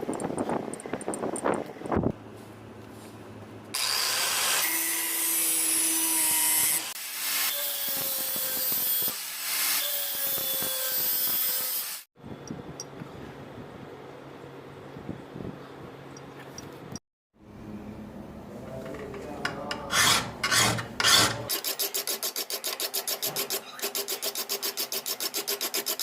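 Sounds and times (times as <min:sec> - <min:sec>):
power tool grinding metal: 0:03.8 - 0:12.1, 0:19.7 - 0:26.0.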